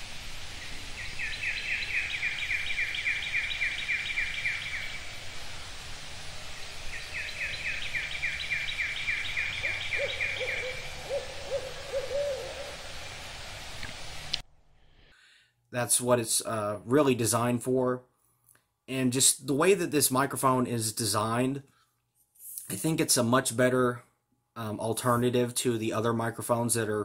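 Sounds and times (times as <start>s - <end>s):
background hiss: 0.0s - 27.0s
owl hooting: 0.6s - 5.8s, 6.9s - 13.4s
small bird trilling: 6.9s - 12.8s.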